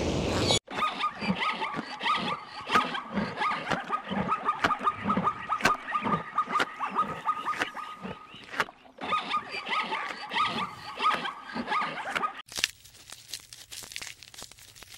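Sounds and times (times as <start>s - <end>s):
grass torn and chewed: 12.4s - 14.9s.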